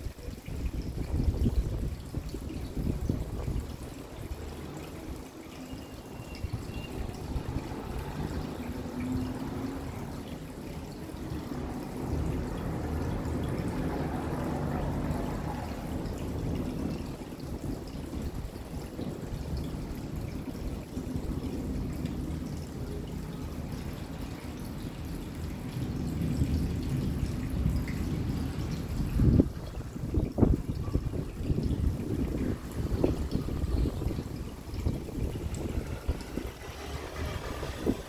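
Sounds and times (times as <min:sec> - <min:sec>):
steady rain: 0:00.0 - 0:38.0
water trickling and dripping: 0:00.0 - 0:38.0.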